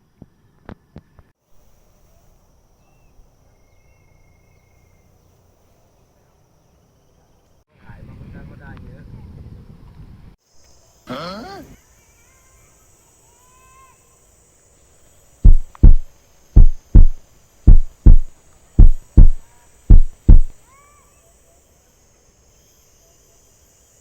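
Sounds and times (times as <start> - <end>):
heartbeat thumps: 15.5 - 20.6.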